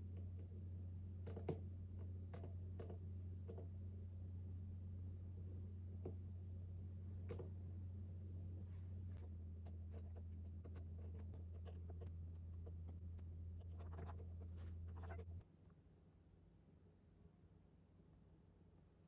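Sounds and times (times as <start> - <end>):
low hum: 0.0 - 15.4
pen scratching while writing: 9.7 - 13.0, 13.6 - 15.3.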